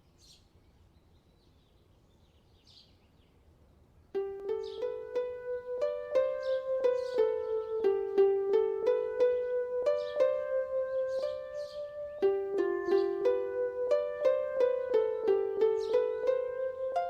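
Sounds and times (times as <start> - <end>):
plucked harp-like music: 4.2 - 17.0.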